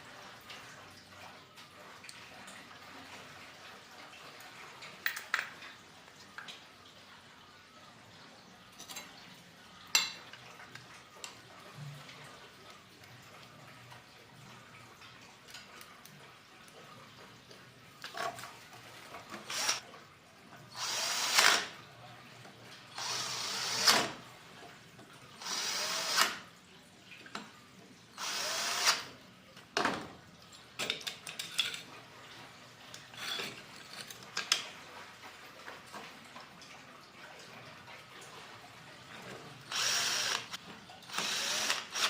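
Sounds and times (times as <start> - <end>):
small power drill bursts: 19.4 - 19.8, 20.8 - 21.7, 23.0 - 24.2, 25.4 - 26.4, 28.2 - 29.1, 39.7 - 42.0.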